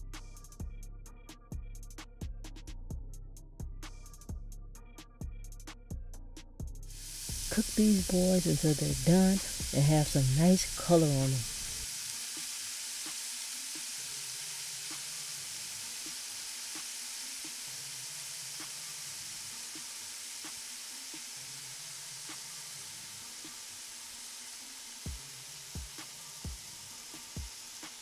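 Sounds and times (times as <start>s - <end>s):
chicken frying in oil: 6.9s - 28.0s.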